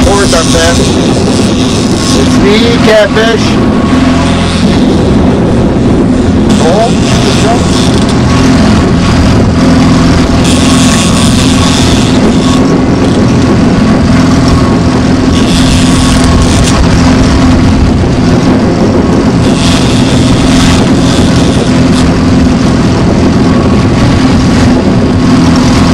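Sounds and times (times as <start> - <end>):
boat motor running: 0.0 - 25.9.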